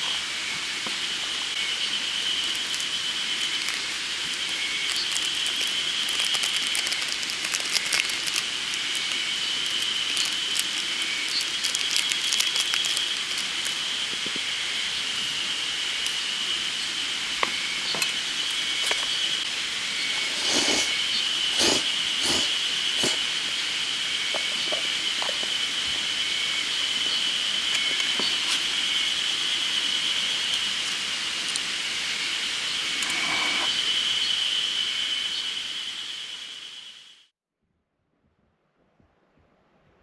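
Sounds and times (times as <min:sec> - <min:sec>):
cicadas chorus: 0:00.0 - 0:37.2
campfire crackling and popping: 0:02.1 - 0:16.7.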